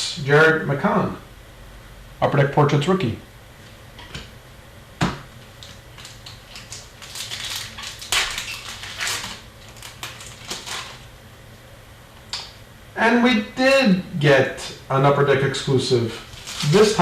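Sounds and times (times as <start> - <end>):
card pack wrapper crinkling: 5.6 - 11.1, 16.2 - 17.0.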